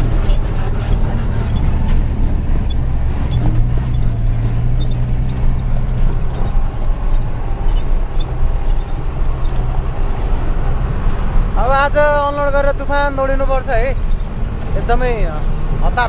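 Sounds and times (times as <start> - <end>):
rattling and knocking: 0.0 - 11.6
vehicle engine running: 0.0 - 16.0.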